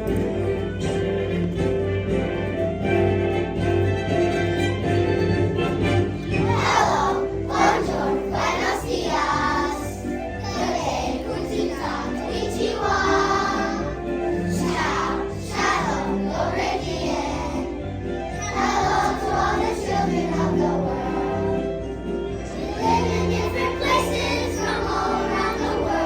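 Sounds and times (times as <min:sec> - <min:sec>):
instrumental accompaniment: 0:00.0 - 0:26.0
children's choir singing: 0:06.3 - 0:26.0.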